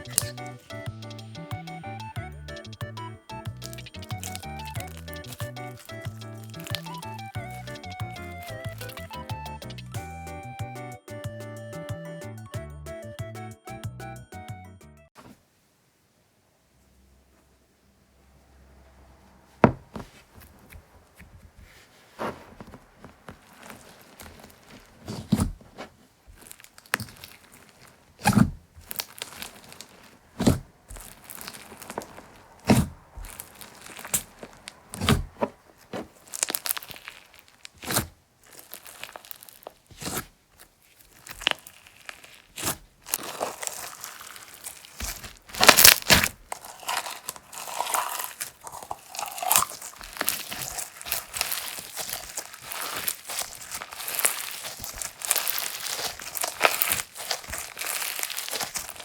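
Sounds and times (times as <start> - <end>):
slime crackling pops: 0.0 - 9.8, 23.2 - 59.0.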